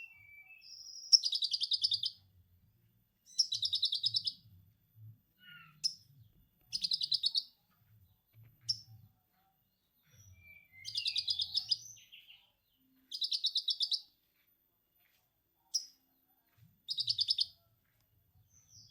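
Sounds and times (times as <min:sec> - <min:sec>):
sharp bird chirps: 0:00.0 - 0:02.2, 0:03.3 - 0:04.4, 0:06.7 - 0:07.6, 0:10.3 - 0:12.4, 0:13.1 - 0:14.1, 0:16.9 - 0:17.5
faint low hum: 0:01.5 - 0:18.9
songbird chattering trills: 0:06.7 - 0:07.5, 0:10.7 - 0:11.8, 0:16.9 - 0:17.5.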